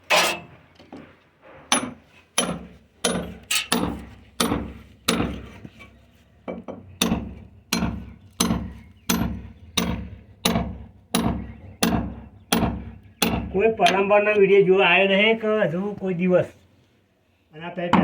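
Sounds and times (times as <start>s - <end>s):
hand hammer striking: 6.6s - 14.0s.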